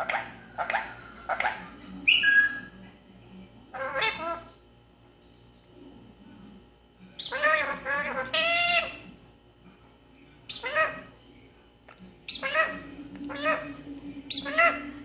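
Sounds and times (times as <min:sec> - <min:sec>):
parakeet calls: 0:00.0 - 0:02.8, 0:03.7 - 0:04.5, 0:07.2 - 0:09.0, 0:10.5 - 0:11.1, 0:12.3 - 0:15.0
parakeet whistle: 0:02.1 - 0:02.7.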